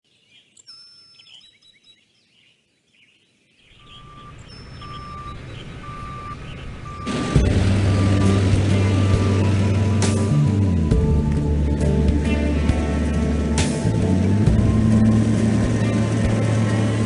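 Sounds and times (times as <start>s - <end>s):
birds chirping: 0.1s - 10.9s
short beeps: 3.8s - 8.4s
low rumble: 5.8s - 17.0s
loud music: 7.1s - 17.0s.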